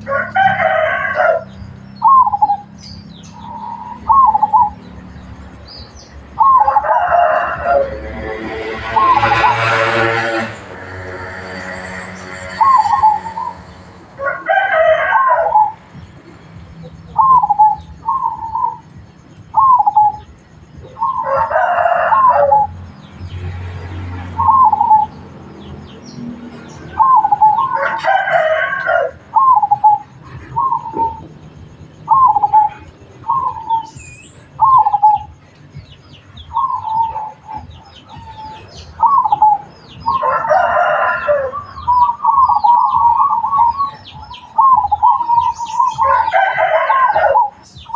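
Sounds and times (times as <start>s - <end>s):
rooster crowing: 0.0s - 2.4s, 6.4s - 10.5s, 14.2s - 15.8s, 21.0s - 22.8s, 27.0s - 29.9s, 38.2s - 43.9s, 44.6s - 47.9s
doves cooing: 0.0s - 35.4s, 36.4s - 47.9s.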